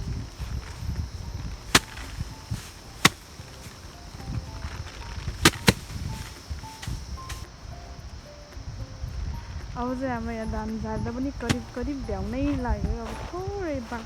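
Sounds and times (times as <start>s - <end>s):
rice sheaves beaten sharp cracks: 1.6s - 7.5s, 11.5s - 11.8s.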